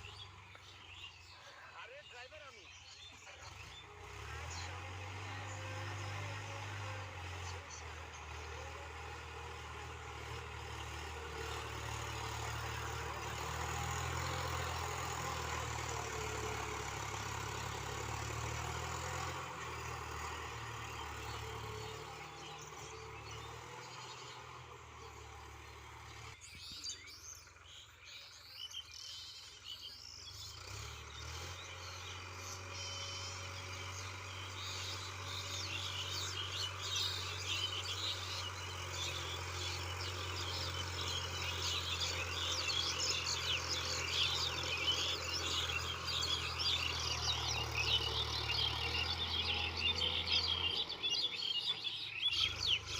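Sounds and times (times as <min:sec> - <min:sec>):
birds chirping: 0:00.0 - 0:52.9
tractor diesel engine running: 0:00.0 - 0:52.9.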